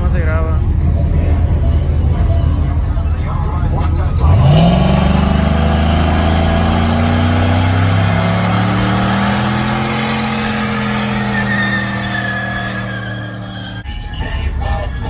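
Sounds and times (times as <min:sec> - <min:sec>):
vehicle engine at high revs: 0:03.3 - 0:13.8.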